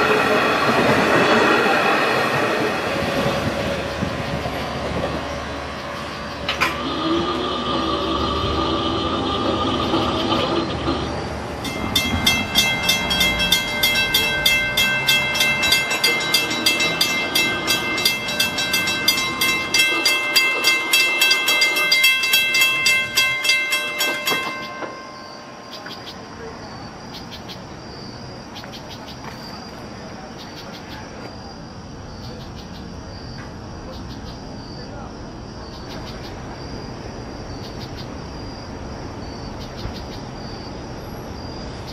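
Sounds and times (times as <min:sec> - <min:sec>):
crickets chirping: 0:00.0 - 0:41.9
train passing: 0:00.0 - 0:41.9
bell ringing rapidly: 0:11.6 - 0:25.7.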